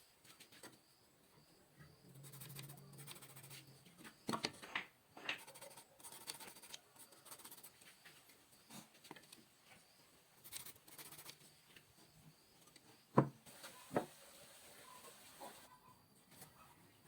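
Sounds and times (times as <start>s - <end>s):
light scratching on wood: 2.1s - 4.2s, 5.2s - 8.9s
soft knocks on wood: 13.2s - 13.4s.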